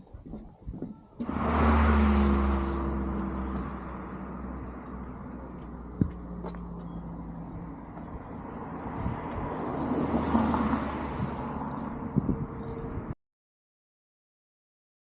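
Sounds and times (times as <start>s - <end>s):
car passing by: 1.2s - 13.0s.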